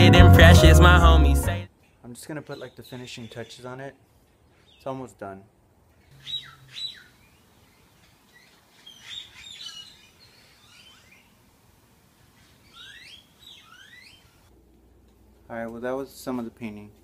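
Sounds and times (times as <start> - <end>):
bird chirping: 6.0 - 11.4, 12.3 - 14.5.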